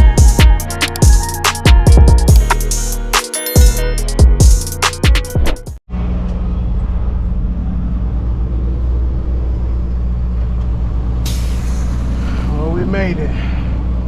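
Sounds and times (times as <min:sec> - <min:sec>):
intro music with drum hits: 0:00.0 - 0:05.8
short hiss: 0:11.3 - 0:12.1.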